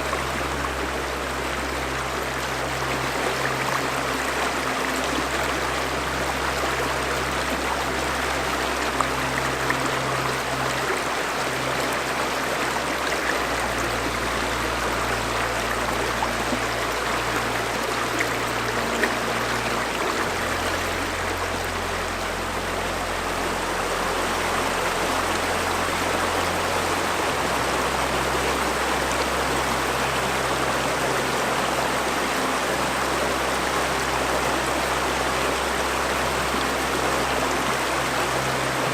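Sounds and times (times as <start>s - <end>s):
river water flowing: 0.0s - 38.9s
soft low music tones: 0.0s - 38.9s.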